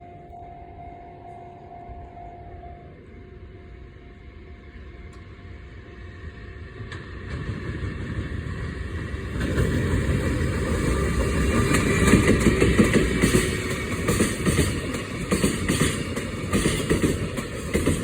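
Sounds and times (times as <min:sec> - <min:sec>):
freight train rumble: 0:00.0 - 0:18.0
wheels clacking over rail joints: 0:06.8 - 0:18.0.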